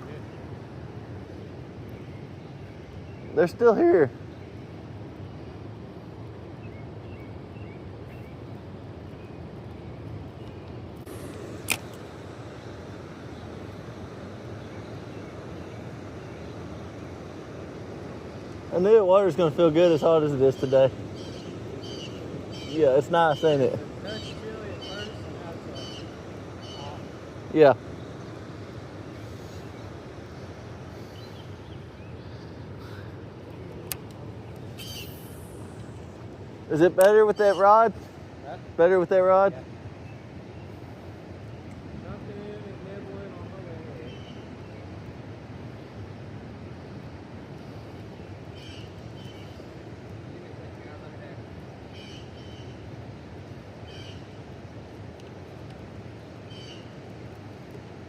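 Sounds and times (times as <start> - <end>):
low outdoor rush: 0.0 - 58.0
sharp click: 11.3 - 12.0.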